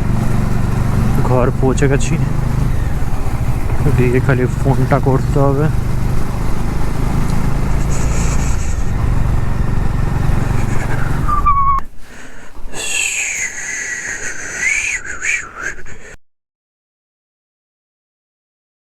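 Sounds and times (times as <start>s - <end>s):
motorcycle engine idling: 0.0s - 11.8s.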